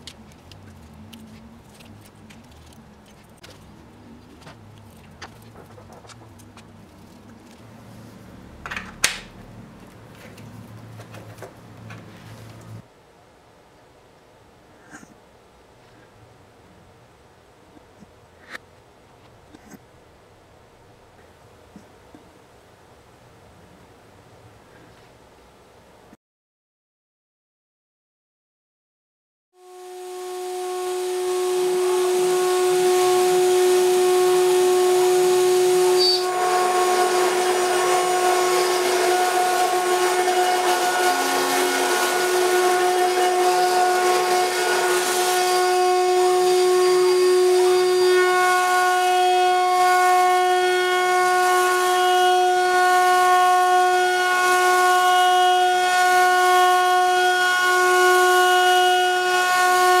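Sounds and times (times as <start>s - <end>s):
rough grinding noise: 0.0s - 12.9s, 30.2s - 52.0s
spindle motor high whine: 29.6s - 60.0s.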